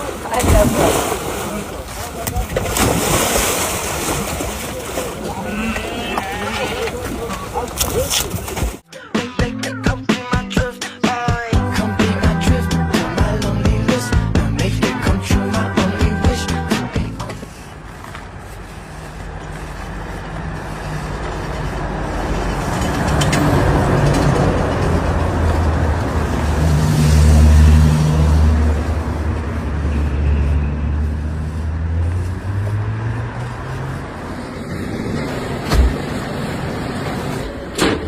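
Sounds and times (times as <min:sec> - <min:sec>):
road noise: 0:00.0 - 0:38.0
vehicle engine humming: 0:08.8 - 0:37.8.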